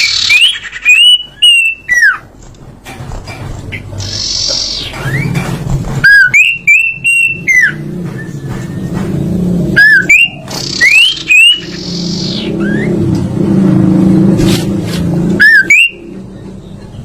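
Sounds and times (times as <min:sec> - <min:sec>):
songbird singing whistled phrases: 0:00.0 - 0:02.3, 0:06.0 - 0:08.4, 0:09.8 - 0:13.0, 0:15.4 - 0:16.2.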